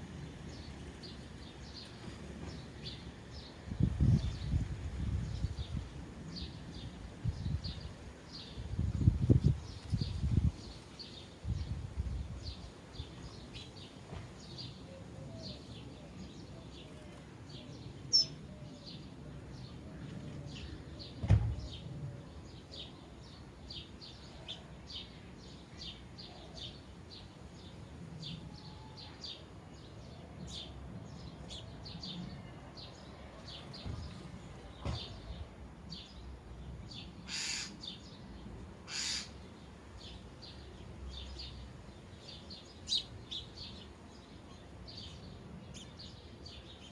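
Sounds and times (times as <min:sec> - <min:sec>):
sparrows chirping: 0:00.0 - 0:46.9
harsh bird calls: 0:37.3 - 0:38.2, 0:38.8 - 0:39.8.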